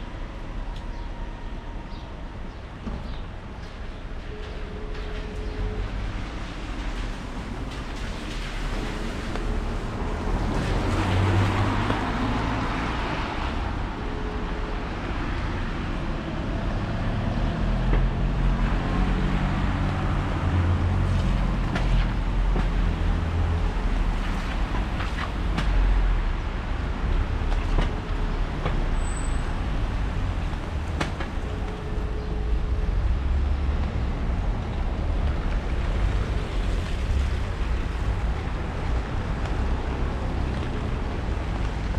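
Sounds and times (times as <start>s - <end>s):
traffic rumble on wet road: 0.0s - 41.9s
rain pattering on an umbrella: 6.0s - 13.7s, 34.1s - 41.9s.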